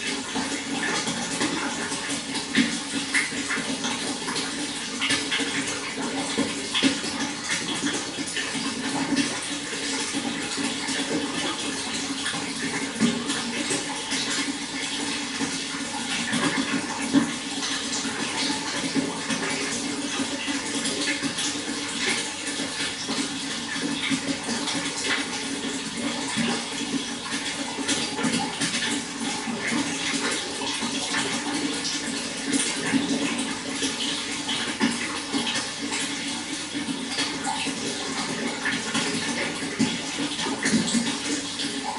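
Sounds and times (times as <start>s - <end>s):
running water splashing: 0.0s - 41.9s.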